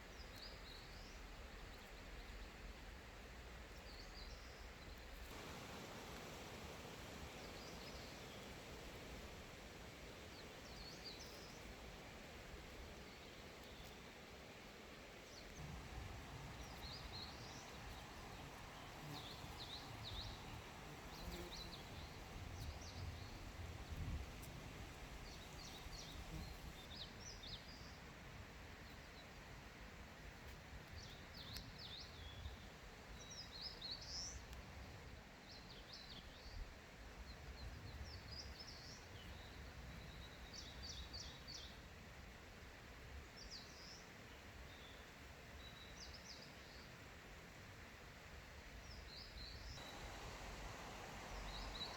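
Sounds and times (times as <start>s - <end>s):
songbirds chirping and trilling: 15.3s - 27.8s, 48.9s - 51.9s
low steady rumble: 49.8s - 51.9s.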